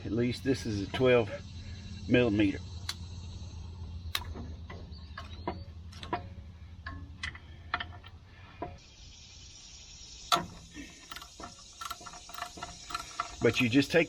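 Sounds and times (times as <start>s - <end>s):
steady low hum: 0.0s - 14.0s
ratchet wrench clicking: 10.3s - 14.0s.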